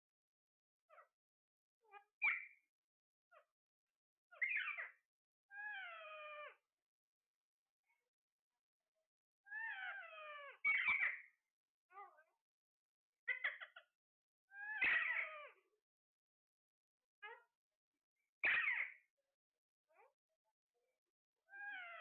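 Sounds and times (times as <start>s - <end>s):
parrot squawking: 4.3s - 4.9s, 5.6s - 6.5s, 9.5s - 11.3s, 13.3s - 13.8s, 14.6s - 15.5s, 18.4s - 19.0s, 21.5s - 22.0s
parrot meow-like calls: 5.5s - 6.6s, 9.5s - 11.2s, 14.5s - 15.6s, 21.5s - 22.0s.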